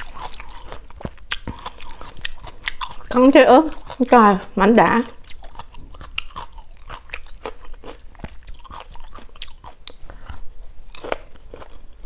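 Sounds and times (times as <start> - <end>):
chewing with wet clicks and crunches: 0.0 - 12.0.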